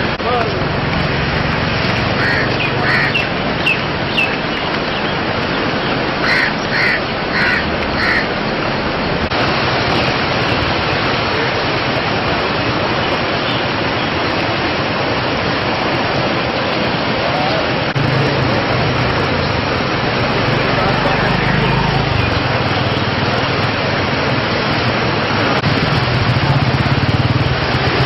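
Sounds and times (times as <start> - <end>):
loud rushing noise: 0.0 - 28.0
short harsh calls: 2.2 - 4.3.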